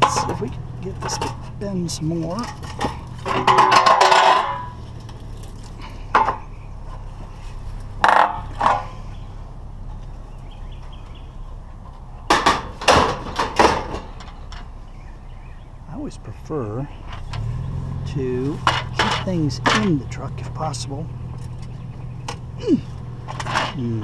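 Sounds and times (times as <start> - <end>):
metal clanks: 0.0 - 9.2, 10.8 - 15.0, 16.9 - 24.0
scrap metal clattering: 0.0 - 9.2, 11.8 - 14.8, 16.9 - 20.2, 22.9 - 24.0.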